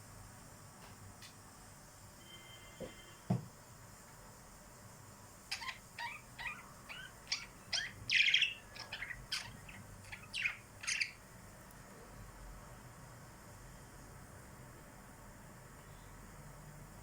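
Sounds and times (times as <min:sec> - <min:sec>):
small birds chirping: 0:05.4 - 0:11.7.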